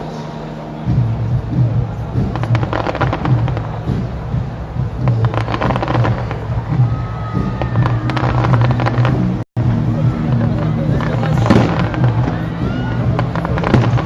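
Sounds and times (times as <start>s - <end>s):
music with low bass: 0.0s - 14.0s
fireworks crackling and popping: 2.1s - 14.0s.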